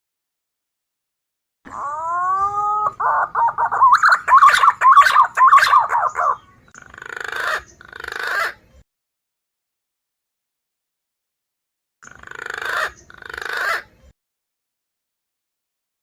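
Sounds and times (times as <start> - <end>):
recorded pigeon call: 1.7 - 8.8, 12.0 - 14.1.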